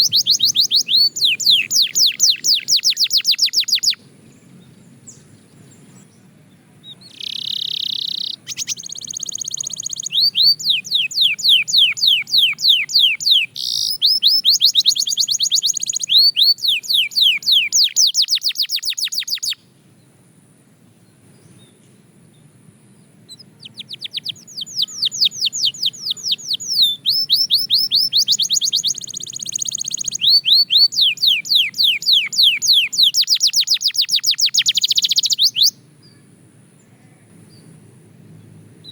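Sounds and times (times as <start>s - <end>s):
canary singing: 0.0s - 5.2s, 6.8s - 19.6s, 23.3s - 35.8s.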